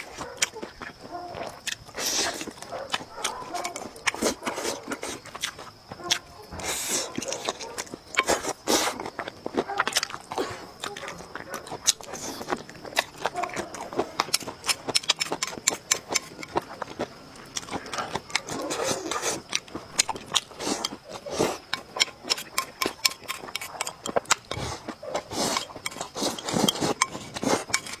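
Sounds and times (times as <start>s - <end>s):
chewing and mouth noises: 0.0s - 28.0s
utensils clicking against dishes: 14.2s - 16.8s, 17.6s - 28.0s.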